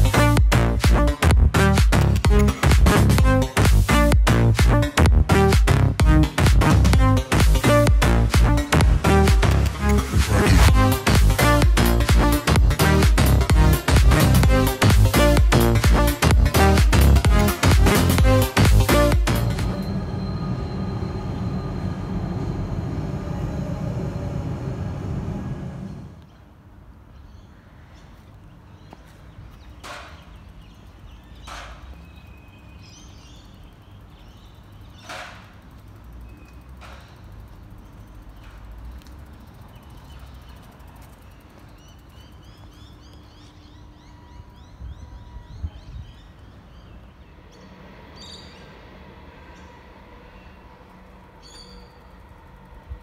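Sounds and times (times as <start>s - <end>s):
train rumbling: 0.0s - 26.3s, 47.3s - 53.0s
high train whine: 17.6s - 26.7s, 43.6s - 53.0s
bird chirping: 36.2s - 52.3s.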